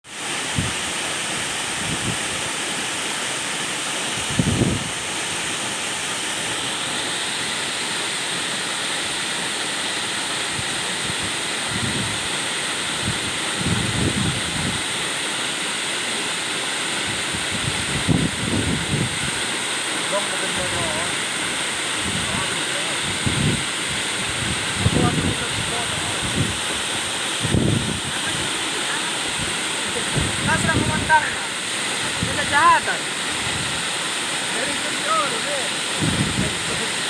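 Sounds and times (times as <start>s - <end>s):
waterfall roaring: 0.0s - 37.0s
wind bumps on microphone: 1.8s - 2.2s, 4.2s - 5.0s, 11.1s - 12.2s, 13.0s - 14.8s, 17.1s - 19.4s, 22.0s - 28.5s, 29.3s - 31.2s, 35.9s - 36.8s.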